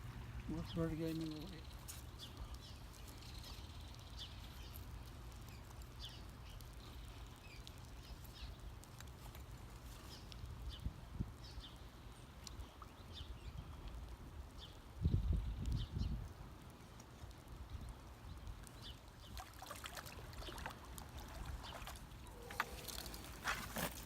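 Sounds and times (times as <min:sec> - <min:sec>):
birds chirping: 0:00.5 - 0:08.8, 0:17.8 - 0:24.0.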